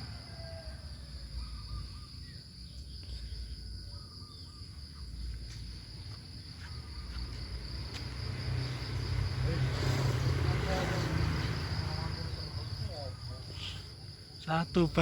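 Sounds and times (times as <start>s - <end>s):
faint bird chirps: 0.0s - 5.6s.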